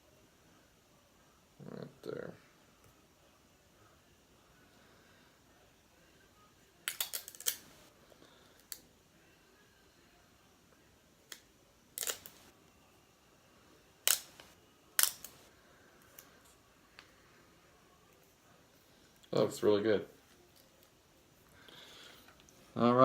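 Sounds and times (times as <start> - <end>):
small hard objects clicking: 6.9 - 7.7, 12.0 - 12.4, 14.0 - 15.4.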